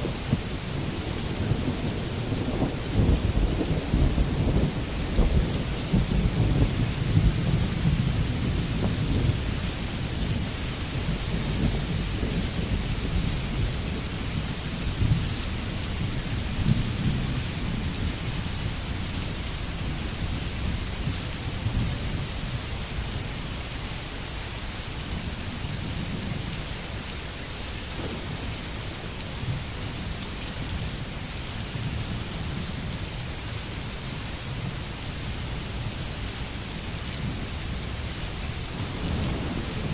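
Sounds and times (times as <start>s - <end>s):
rolling thunder rumble: 0.0s - 23.1s, 27.7s - 31.1s, 36.8s - 39.9s
rain falling in forest: 0.0s - 39.9s.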